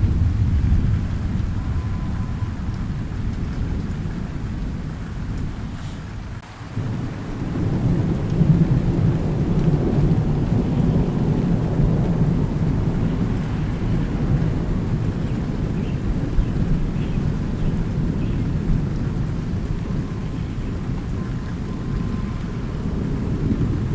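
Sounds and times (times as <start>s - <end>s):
steady rain: 0.0s - 23.9s
thunder rumbling: 0.0s - 23.9s.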